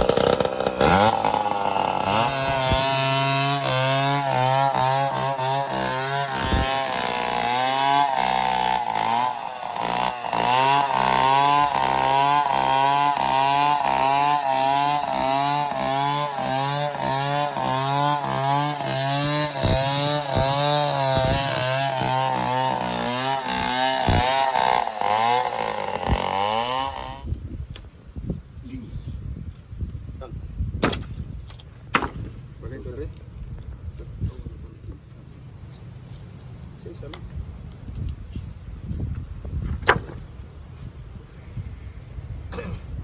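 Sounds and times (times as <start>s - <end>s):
chainsaw running under load: 0.0s - 27.3s.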